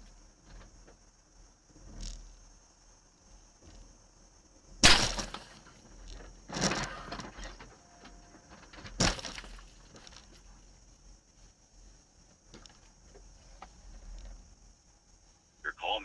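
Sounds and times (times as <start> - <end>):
car crash impacts: 4.8 - 5.8, 8.9 - 9.8.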